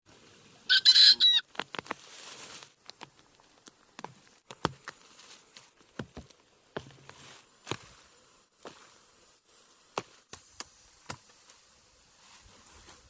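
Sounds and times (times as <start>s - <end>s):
bird squawking: 0.7s - 1.4s.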